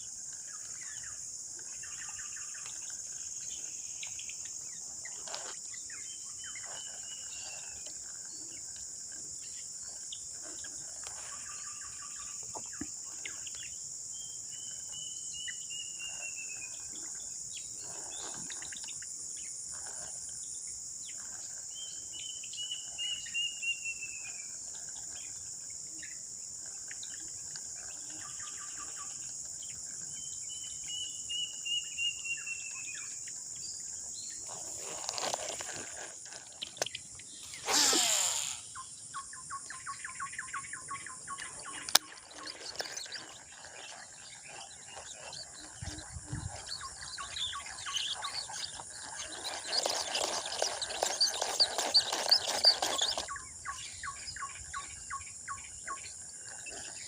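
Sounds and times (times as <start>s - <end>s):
insect chorus: 0.0s - 57.0s.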